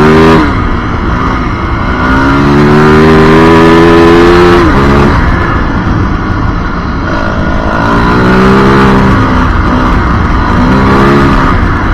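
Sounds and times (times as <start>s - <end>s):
dirt bike engine running: 0.0s - 11.9s.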